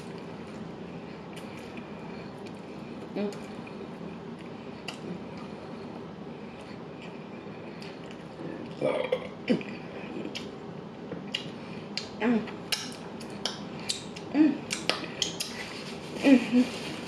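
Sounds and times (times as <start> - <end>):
wet chewing and lip smacks: 4.4 - 5.5, 11.2 - 15.7.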